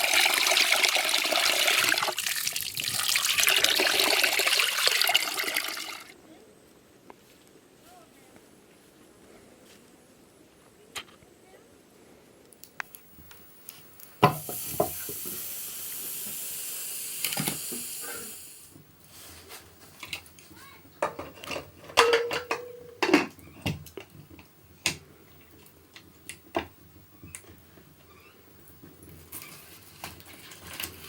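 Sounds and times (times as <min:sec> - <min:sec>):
food sizzling in oil: 0:14.2 - 0:18.6
utensils clinking against pot: 0:21.0 - 0:23.4
metal clank: 0:21.1 - 0:23.4.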